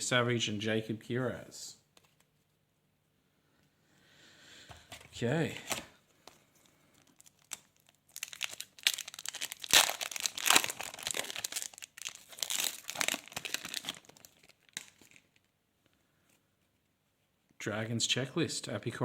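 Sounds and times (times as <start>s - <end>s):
wrapper tearing and crinkling: 7.1s - 15.5s.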